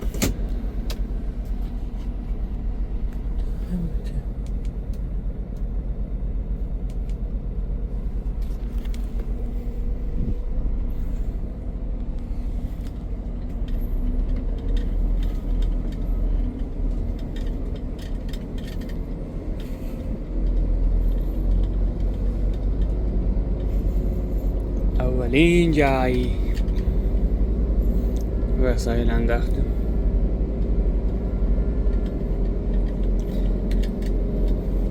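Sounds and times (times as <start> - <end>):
truck engine and road rumble: 0.0 - 34.9
light clicks and rattles: 12.0 - 29.8, 30.5 - 34.9.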